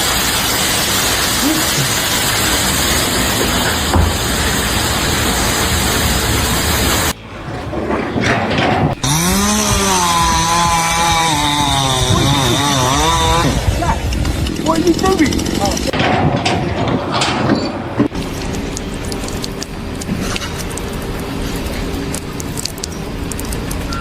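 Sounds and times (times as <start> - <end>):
small motor running: 0.0 - 7.1, 9.0 - 15.8
loud machine noise: 0.0 - 24.0.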